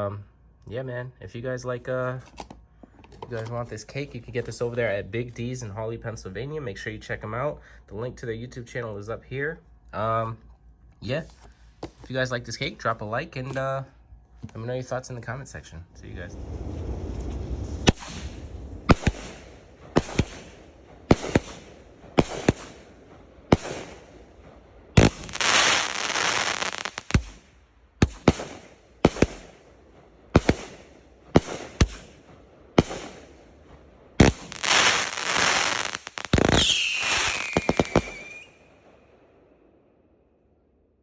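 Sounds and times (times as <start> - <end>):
dense firework crackling: 16.0 - 39.1
firework shots: 16.0 - 39.5
falling firework whistle: 34.2 - 38.7.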